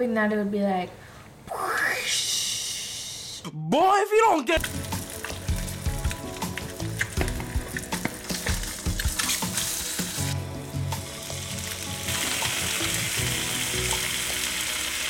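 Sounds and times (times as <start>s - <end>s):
food frying in hot oil: 4.6s - 15.0s.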